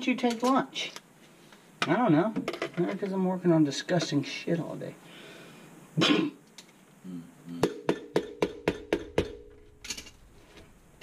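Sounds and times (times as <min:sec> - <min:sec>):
tool tapping on metal: 0:07.6 - 0:10.1.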